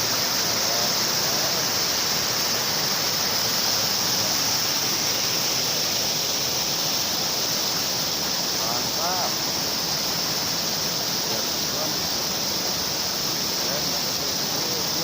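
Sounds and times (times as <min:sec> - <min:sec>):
river and waterfall rushing: 0:00.0 - 0:15.0.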